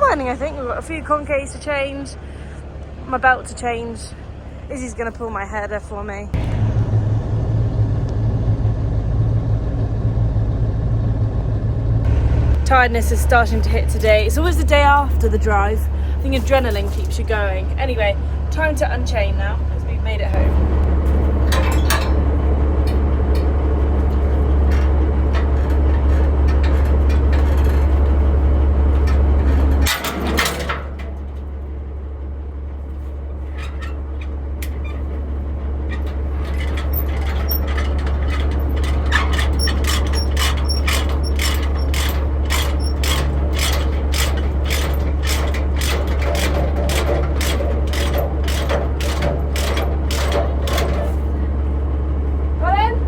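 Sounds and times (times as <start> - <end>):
truck engine idling: 0.0 - 53.0
sharp clicks and rattles: 11.8 - 32.0, 32.8 - 51.4.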